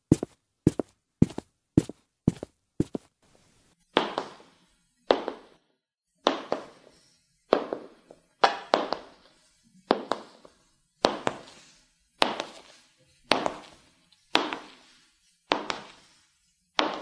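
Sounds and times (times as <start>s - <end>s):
high heels on hard floor: 0.0s - 3.1s, 4.0s - 4.5s, 5.1s - 5.6s, 6.2s - 6.9s, 7.5s - 9.2s, 9.9s - 10.4s, 11.0s - 11.5s, 12.2s - 12.7s, 13.3s - 14.8s, 15.5s - 16.0s, 16.8s - 17.0s.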